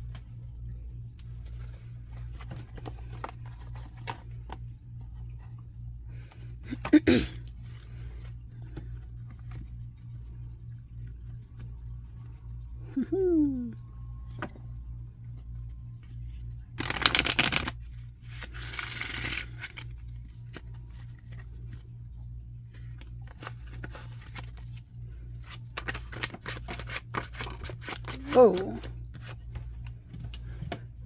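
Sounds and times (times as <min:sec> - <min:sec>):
steady low hum: 0:00.0 - 0:31.0
card flicks and clicks: 0:16.8 - 0:17.7
cards sliding shuffle: 0:16.8 - 0:21.5, 0:23.3 - 0:24.8, 0:25.4 - 0:29.4
cards riffle shuffled: 0:16.8 - 0:21.6, 0:22.9 - 0:24.8, 0:25.4 - 0:29.4.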